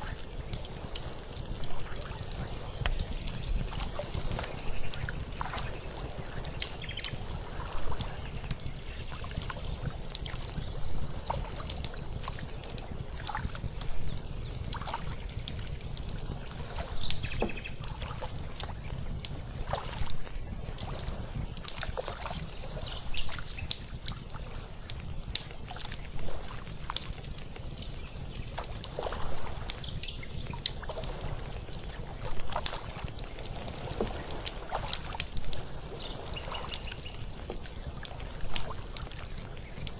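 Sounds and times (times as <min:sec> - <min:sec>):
fire crackling: 0:00.0 - 0:39.9
water lapping: 0:00.0 - 0:39.9.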